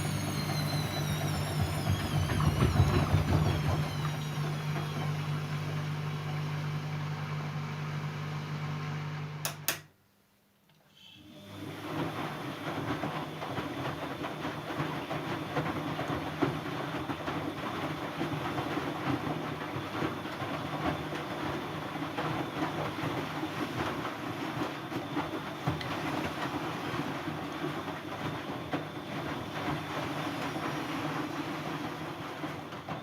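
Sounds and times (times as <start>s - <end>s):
washing machine motor hum: 0.0s - 10.0s, 11.2s - 33.0s
drum clattering: 0.5s - 4.2s.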